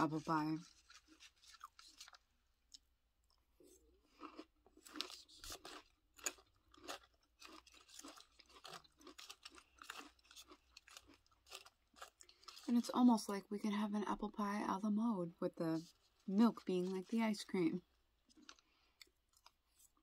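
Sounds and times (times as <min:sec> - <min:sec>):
chewing crunchy cereal: 0:00.0 - 0:13.3, 0:15.8 - 0:20.0.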